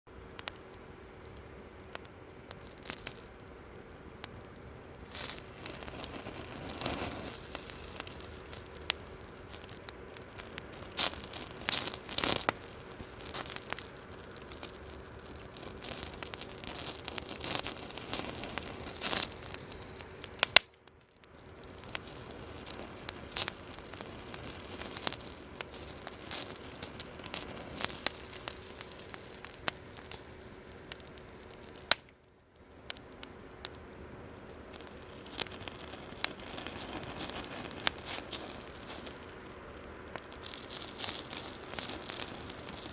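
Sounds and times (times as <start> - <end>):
campfire crackling and popping: 0.1 - 42.9.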